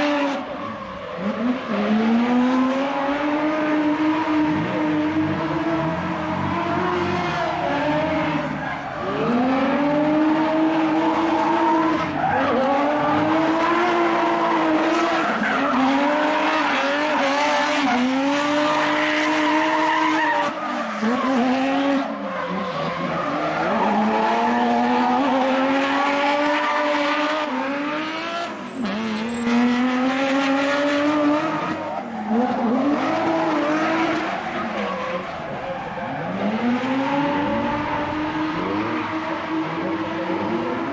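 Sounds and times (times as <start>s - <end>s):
car engine revving hard: 1.2s - 20.3s, 23.0s - 40.9s
tyre squeal: 28.4s - 30.0s.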